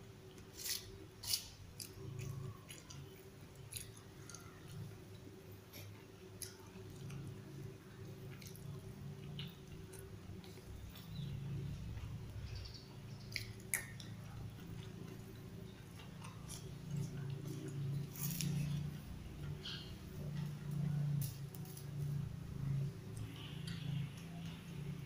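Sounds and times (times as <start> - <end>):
low steady hum: 0.0 - 25.0
person chewing: 0.3 - 10.9.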